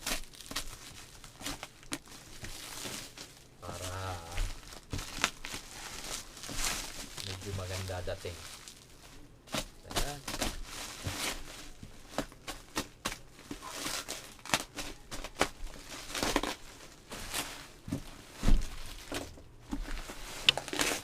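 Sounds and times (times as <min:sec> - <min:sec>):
packaging crinkling and tearing: 0:00.0 - 0:21.0
dull thump: 0:17.9 - 0:18.7.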